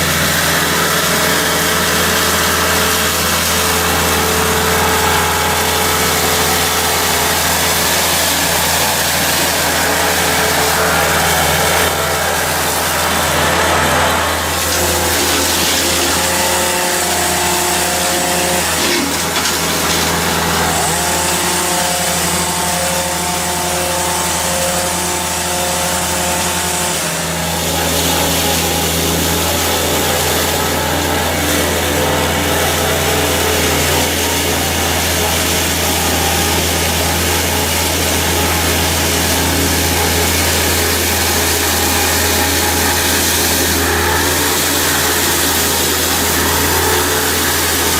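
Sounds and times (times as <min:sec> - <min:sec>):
heavy machine engine running: 0:00.0 - 0:47.9
pitched engine whine: 0:00.0 - 0:47.9.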